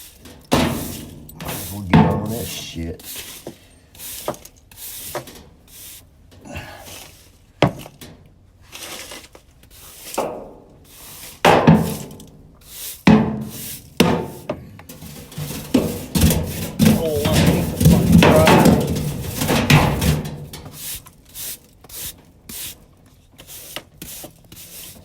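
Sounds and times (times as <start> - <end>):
brushing and scraping: 0.0 - 8.0, 8.6 - 25.0
knocks and thuds: 11.5 - 12.1, 13.1 - 20.8.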